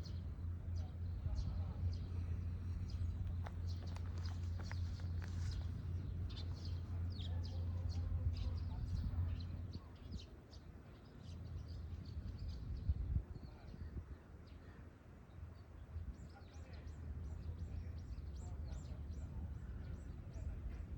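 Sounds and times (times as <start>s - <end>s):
steady low rumble: 0.0s - 10.2s
small birds chirping: 0.0s - 13.9s.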